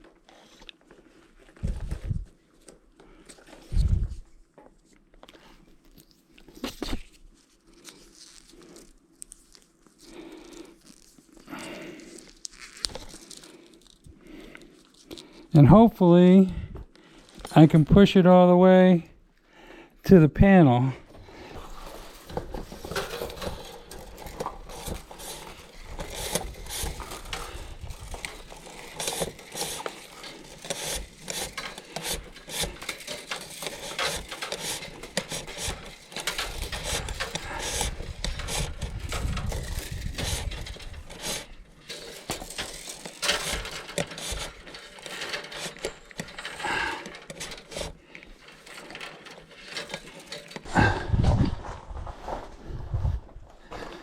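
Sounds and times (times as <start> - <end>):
wire scraping inside metal conduit: 21.5 - 50.9.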